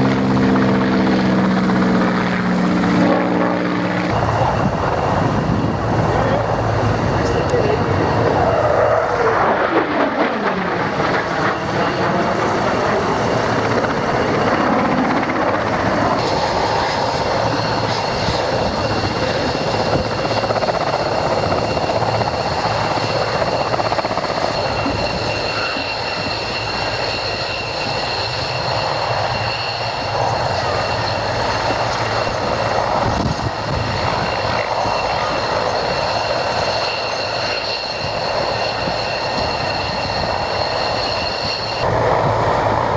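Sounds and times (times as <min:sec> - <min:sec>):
aircraft passing: 0:00.0 - 0:42.9
constant engine noise: 0:00.0 - 0:42.9
high engine whine: 0:00.0 - 0:42.9.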